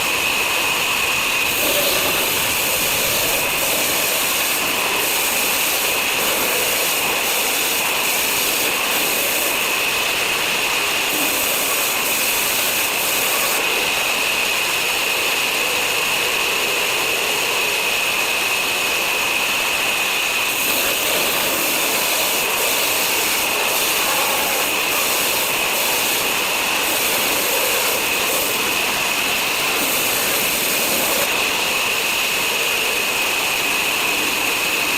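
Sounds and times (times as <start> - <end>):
power saw whining: 0.0 - 16.2, 16.9 - 34.9
constant rushing noise: 19.5 - 34.9.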